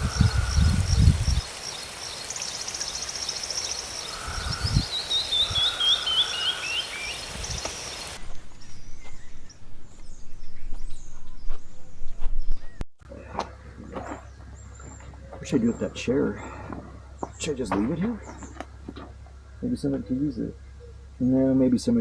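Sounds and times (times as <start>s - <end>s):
small birds singing and chirping: 0.0s - 12.8s.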